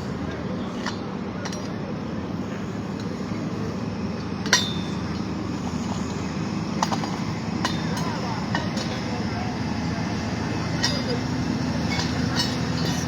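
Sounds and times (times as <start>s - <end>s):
heavy machinery engine rumble: 0.0s - 13.0s
light metal clink: 4.4s - 5.3s, 10.7s - 13.0s
sharp metallic clank: 4.4s - 5.3s.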